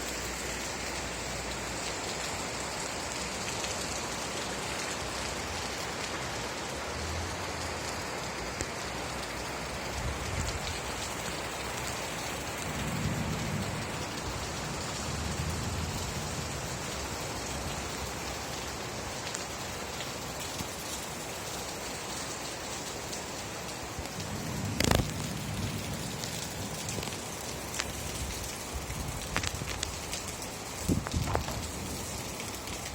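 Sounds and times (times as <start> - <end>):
steady rain: 0.0 - 32.9
low thunder rumbles: 12.5 - 17.8, 24.1 - 30.0.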